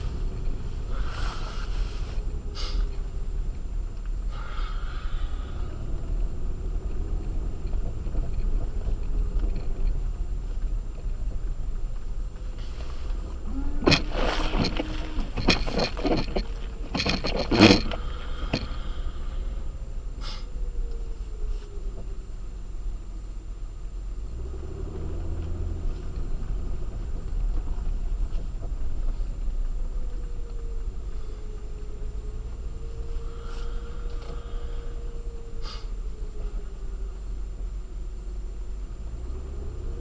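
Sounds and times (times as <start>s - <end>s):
low road rumble: 0.0s - 40.0s
knocks and clatters: 6.9s - 18.9s.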